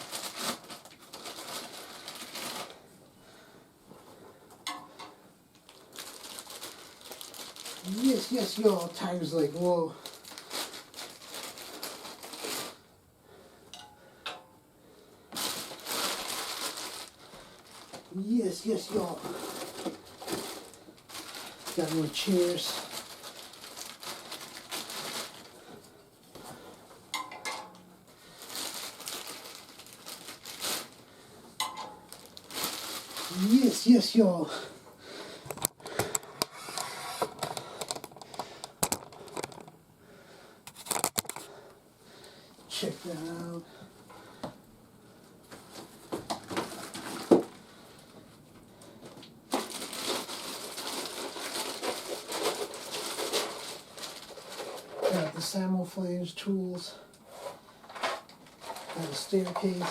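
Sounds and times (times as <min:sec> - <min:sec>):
plastic packaging crinkling: 0:00.0 - 0:02.9, 0:05.5 - 0:12.9, 0:15.3 - 0:27.3, 0:28.0 - 0:34.7, 0:35.5 - 0:39.8, 0:40.7 - 0:41.6, 0:45.4 - 0:47.6, 0:49.0 - 0:55.7, 0:56.9 - 0:59.9
plastic parts clicking and clacking: 0:35.5 - 0:39.8.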